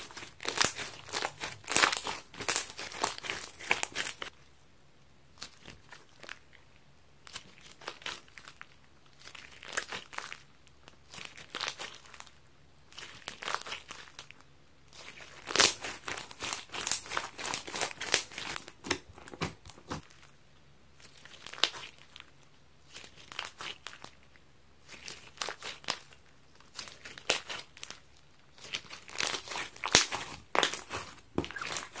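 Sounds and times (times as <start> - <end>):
slime crackling when squeezed: 0.0 - 4.3, 24.8 - 32.0.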